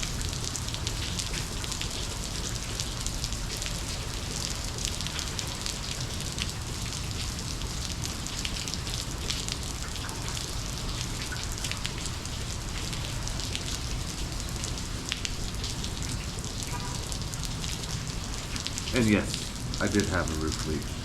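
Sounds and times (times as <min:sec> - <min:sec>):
raindrops ticking: 0:00.0 - 0:21.0
heavy rain hissing: 0:11.8 - 0:21.0.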